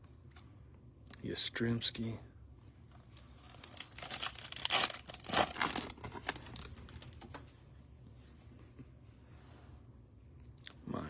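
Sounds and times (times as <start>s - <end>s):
card pack wrapper tearing: 3.5s - 7.4s.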